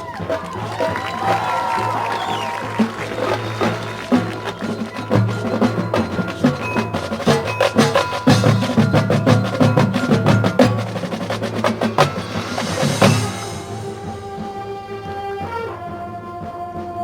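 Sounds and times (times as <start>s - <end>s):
mallet percussion: 0.0s - 14.8s
fast drum strokes: 0.0s - 17.0s
marching band music: 0.0s - 17.0s
cymbal wash: 2.2s - 15.1s.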